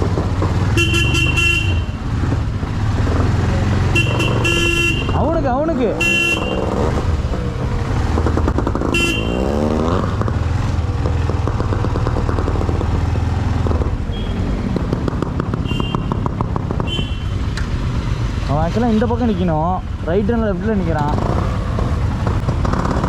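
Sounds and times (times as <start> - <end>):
motorcycle engines idling: 0.0 - 9.5
short horn toots: 3.9 - 5.2, 5.9 - 6.9, 8.9 - 9.6.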